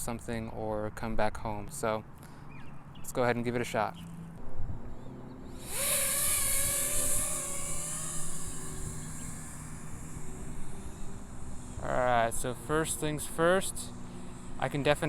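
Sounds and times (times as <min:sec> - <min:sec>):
drone motors buzzing whine: 0:04.6 - 0:15.0
propeller wash hiss: 0:05.6 - 0:15.0.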